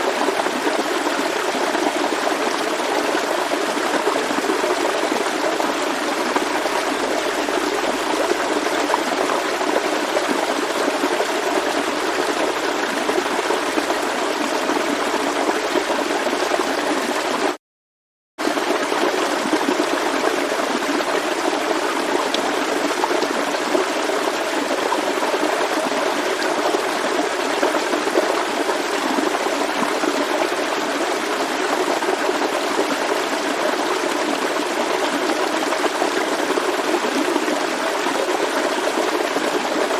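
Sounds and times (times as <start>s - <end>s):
stream flowing over rocks: 0.0s - 17.6s, 18.4s - 39.9s.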